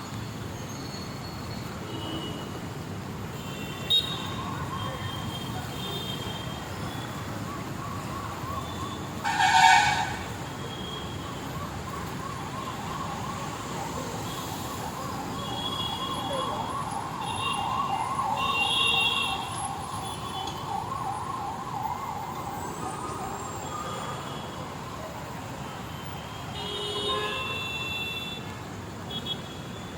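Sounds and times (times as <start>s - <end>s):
road traffic: 0.0s - 29.9s
warbling emergency siren: 4.1s - 26.0s
vehicle horn blaring: 9.2s - 10.3s.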